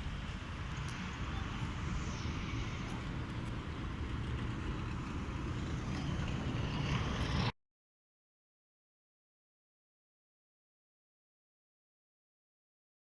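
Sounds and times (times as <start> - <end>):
road traffic rumble: 0.0 - 7.5.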